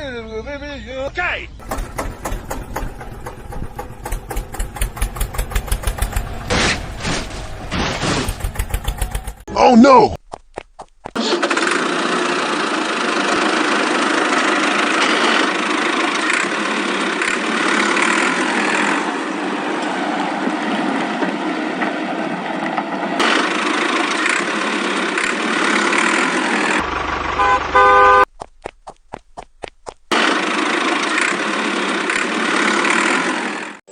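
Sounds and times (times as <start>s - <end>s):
vehicle running steadily: 1.6s - 9.5s, 10.2s - 33.8s
car horn honking: 26.8s - 28.3s.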